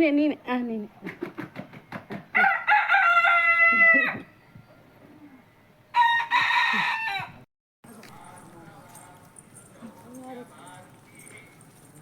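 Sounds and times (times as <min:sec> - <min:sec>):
rooster crowing: 0:02.4 - 0:04.3, 0:05.9 - 0:07.4.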